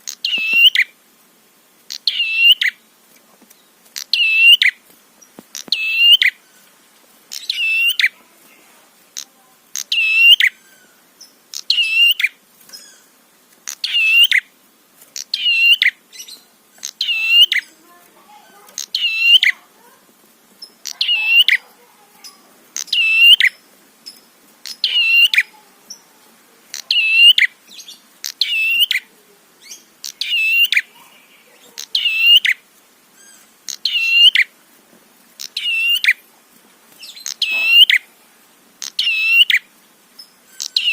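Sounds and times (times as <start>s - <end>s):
bird song high rapid notes: 37.2s - 38.0s.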